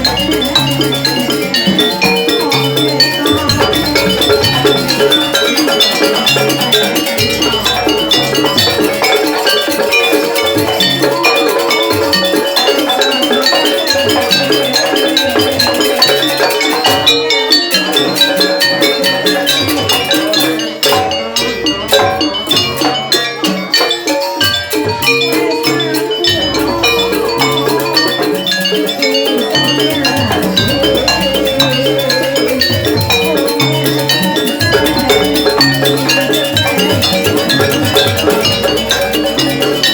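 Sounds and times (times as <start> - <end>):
struck metal keyed notes: 0.0 - 39.9
low drum and gong beats: 29.5 - 39.9.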